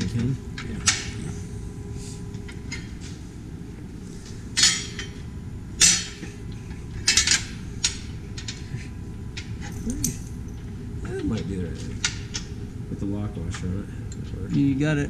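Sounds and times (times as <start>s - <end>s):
metal hardware clinking: 7.0s - 8.6s, 9.4s - 10.7s.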